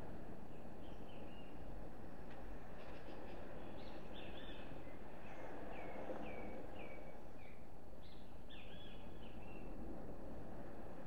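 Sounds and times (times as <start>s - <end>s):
songbird calling: 3.6s - 9.7s.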